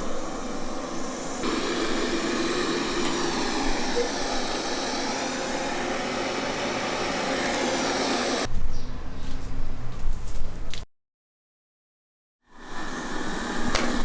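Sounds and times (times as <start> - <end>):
robot vacuum whirring: 0.0 - 8.5, 12.5 - 14.0.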